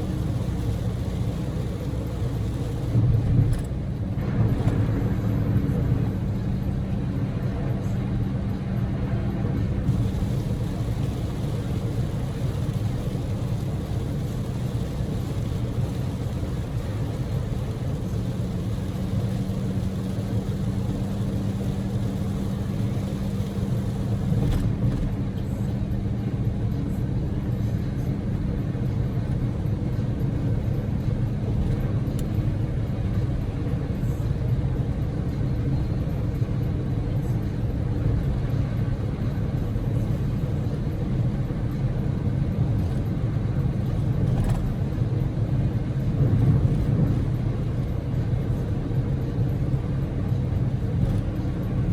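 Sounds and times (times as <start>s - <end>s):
tyre and road noise: 0.0s - 27.0s
car engine cruising: 0.0s - 51.9s.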